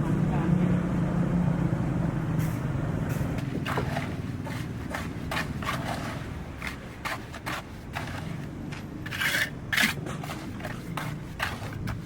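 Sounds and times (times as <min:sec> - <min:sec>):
short scrapes or knocks: 0:03.4 - 0:12.0.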